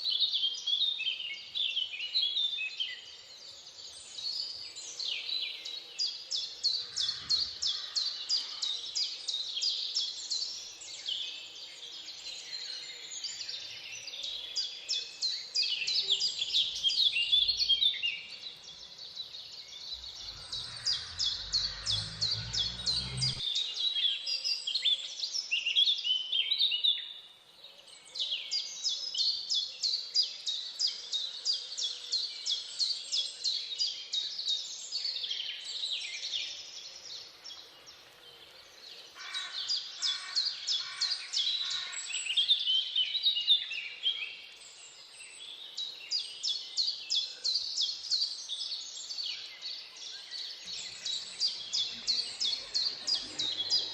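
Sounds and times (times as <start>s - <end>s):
birds chirping in chorus: 0.0s - 53.9s
low rumble: 19.8s - 23.4s.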